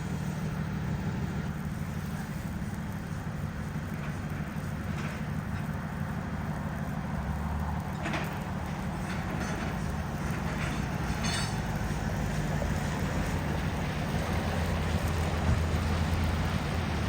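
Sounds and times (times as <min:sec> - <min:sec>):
vehicle engine idling: 0:00.0 - 0:17.0
faint clinks: 0:09.1 - 0:11.8.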